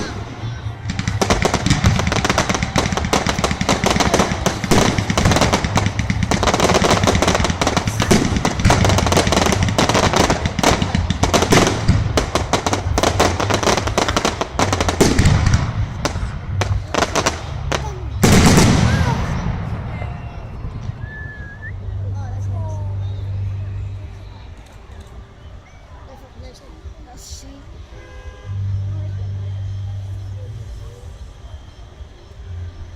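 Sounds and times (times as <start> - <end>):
fireworks barrage: 0.0 - 22.1.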